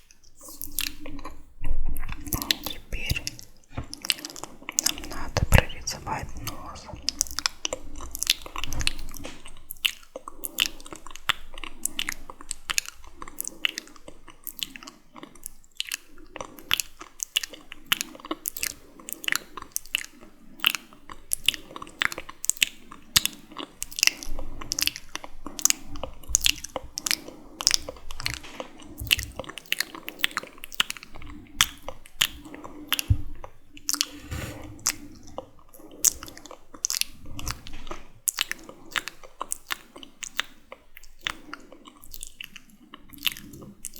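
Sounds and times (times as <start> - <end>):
wet mouth clicks and smacks: 0.3 - 1.4, 2.0 - 10.9, 38.3 - 43.9.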